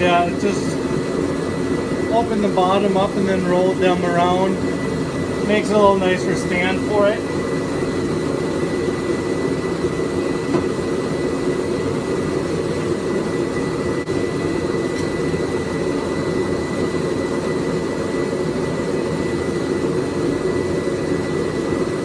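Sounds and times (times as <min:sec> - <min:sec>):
forge rushing noise: 0:00.0 - 0:07.6
thin high whine: 0:00.0 - 0:11.6.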